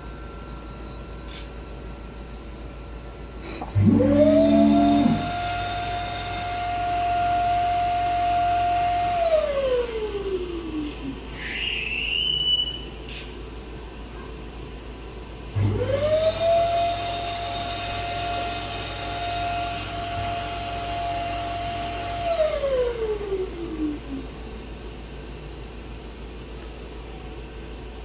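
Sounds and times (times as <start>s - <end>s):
cotton candy machine motor whine: 3.2s - 13.0s, 15.3s - 25.1s.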